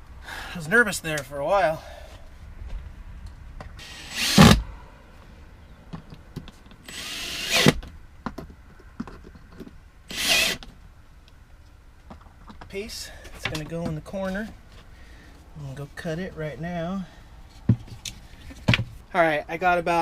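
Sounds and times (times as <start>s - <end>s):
power drill running: 3.8s - 4.6s, 6.9s - 7.8s, 10.1s - 10.6s.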